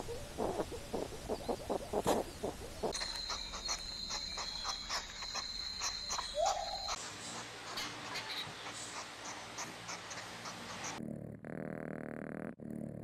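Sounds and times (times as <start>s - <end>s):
hedgehogs snuffling: 0.0s - 3.0s, 7.7s - 11.3s.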